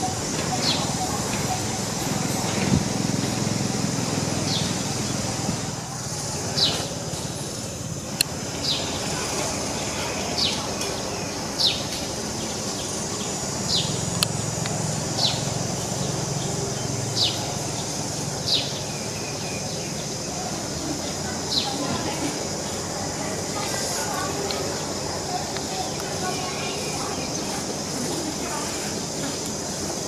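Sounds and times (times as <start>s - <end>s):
bird chirping: 0.0s - 2.6s.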